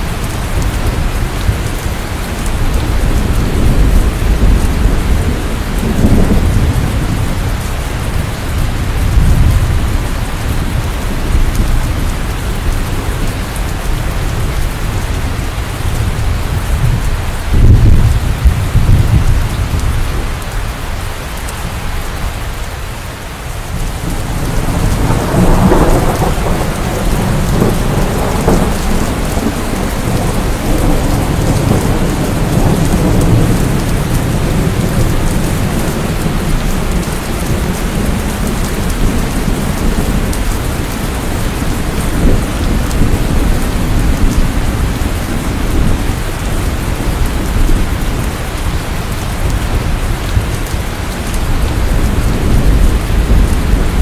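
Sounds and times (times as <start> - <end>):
heavy rain: 0.0 - 54.0
rolling thunder: 0.2 - 20.5, 23.6 - 54.0.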